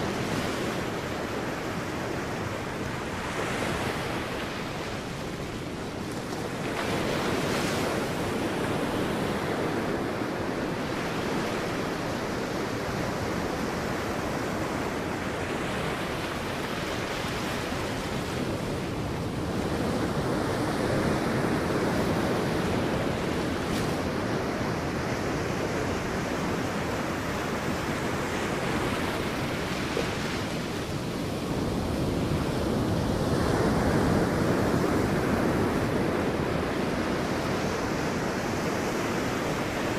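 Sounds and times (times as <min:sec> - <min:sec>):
sea waves breaking on beach: 0:00.0 - 0:39.9.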